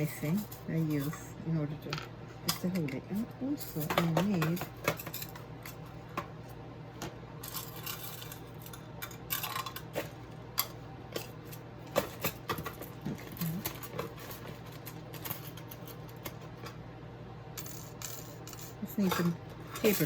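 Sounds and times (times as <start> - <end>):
metal tools clicking and tapping: 0.0 - 6.3, 17.6 - 20.0
steady low hum: 0.0 - 20.0.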